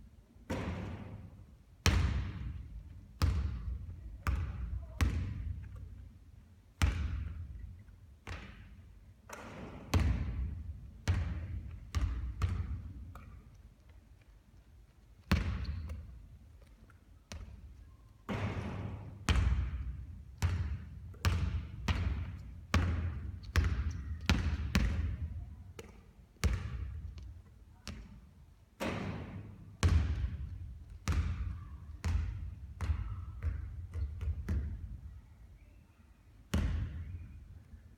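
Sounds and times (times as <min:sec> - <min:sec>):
basketball bouncing on hard court: 0:00.5 - 0:01.2, 0:01.8 - 0:02.6, 0:03.2 - 0:05.9, 0:06.8 - 0:07.6, 0:08.2 - 0:08.7, 0:09.3 - 0:13.4, 0:15.3 - 0:16.1, 0:17.3 - 0:17.7, 0:18.3 - 0:28.2, 0:28.8 - 0:34.9, 0:36.5 - 0:37.0.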